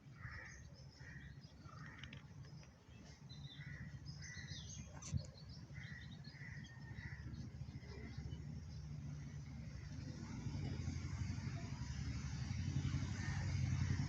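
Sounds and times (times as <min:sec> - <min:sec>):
crow cawing: 0:00.2 - 0:02.1.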